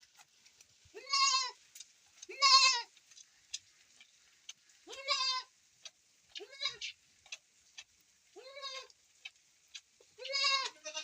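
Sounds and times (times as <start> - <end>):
goat bleating: 0.9 - 1.6, 2.3 - 2.9, 4.8 - 5.5, 6.3 - 7.0, 8.4 - 8.9, 10.2 - 11.0.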